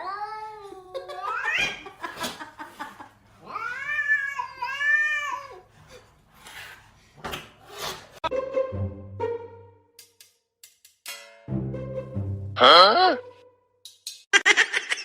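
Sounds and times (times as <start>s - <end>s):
cat yowling: 3.4s - 5.6s.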